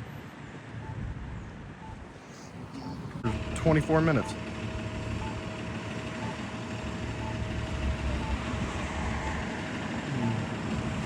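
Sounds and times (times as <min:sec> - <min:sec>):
road traffic rumbling: 0:00.0 - 0:11.0
faint short beeps: 0:00.8 - 0:03.1.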